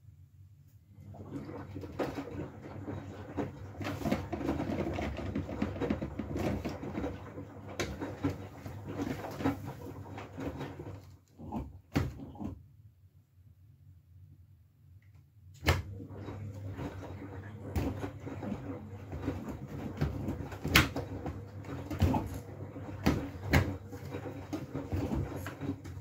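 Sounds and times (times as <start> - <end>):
washing machine motor hum: 0.0 - 12.7, 15.4 - 26.0
wet load tumbling in drum: 1.0 - 12.5, 15.9 - 26.0.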